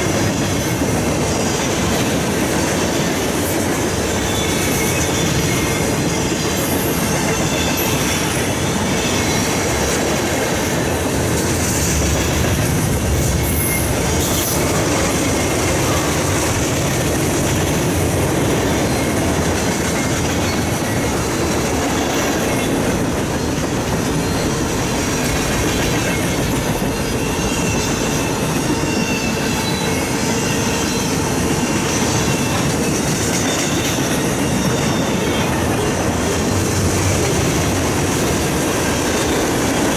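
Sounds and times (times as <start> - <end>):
train wheels rumbling on rails: 0.0 - 39.9
high wheel squeals: 3.4 - 9.7, 13.0 - 17.2, 18.3 - 36.5.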